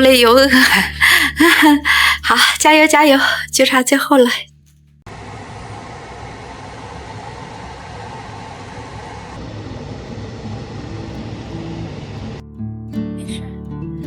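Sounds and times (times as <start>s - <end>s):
soft background music: 0.0s - 4.6s
vacuum cleaner running: 5.1s - 12.4s.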